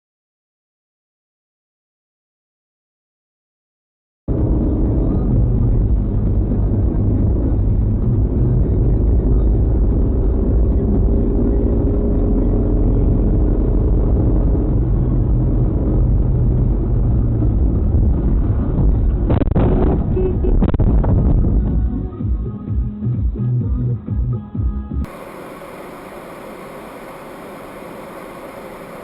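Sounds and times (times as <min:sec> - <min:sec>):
faint whine dropping in pitch: 0:04.3 - 0:21.4, 0:25.1 - 0:29.0
car road and engine rumble: 0:04.3 - 0:23.4, 0:25.0 - 0:29.0.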